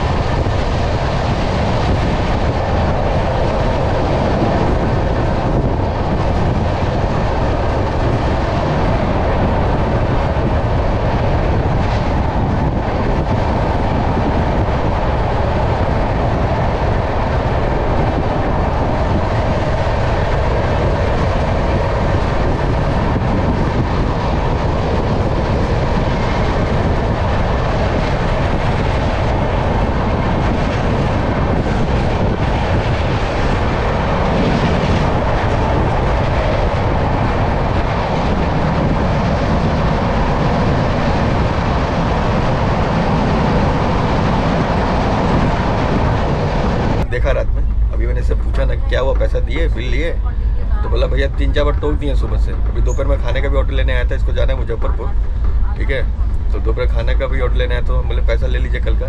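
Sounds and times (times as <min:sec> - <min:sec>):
train carriage rumbling and rattling: 0:00.0 - 0:59.0.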